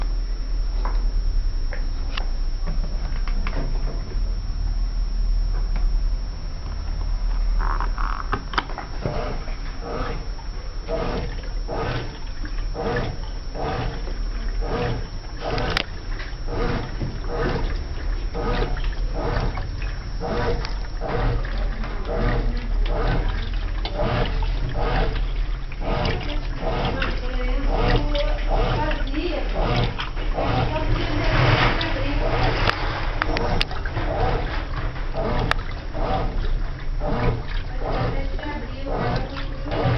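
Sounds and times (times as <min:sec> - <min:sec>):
low motor hum: 0:00.0 - 0:39.9
washing machine sloshing water: 0:08.4 - 0:39.9.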